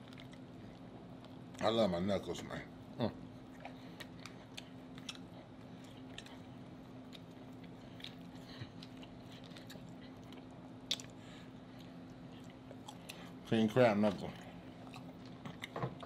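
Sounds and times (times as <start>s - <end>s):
low steady hum: 0.0s - 16.0s
wet mouth clicks and smacks: 7.1s - 11.2s.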